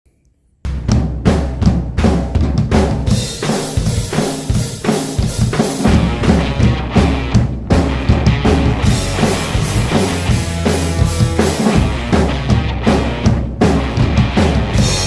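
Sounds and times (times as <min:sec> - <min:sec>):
acoustic drum kit playing: 0:00.7 - 0:15.0
rock music with bass and guitar: 0:05.4 - 0:15.0.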